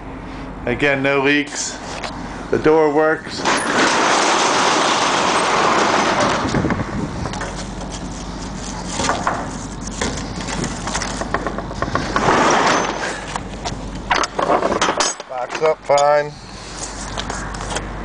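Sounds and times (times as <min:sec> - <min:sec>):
metal cargo door rattling slide: 0:03.3 - 0:07.6, 0:10.3 - 0:13.4
metal door clanks and clicks: 0:14.1 - 0:16.1.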